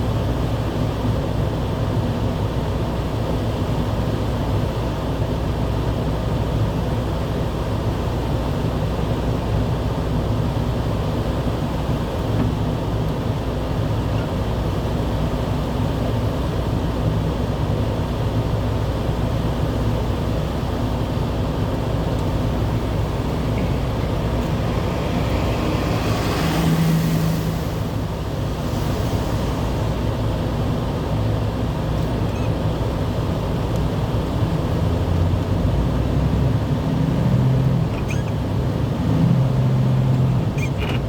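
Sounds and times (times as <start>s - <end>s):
vehicle road and engine noise: 0.0s - 41.0s
hiss: 22.6s - 31.6s.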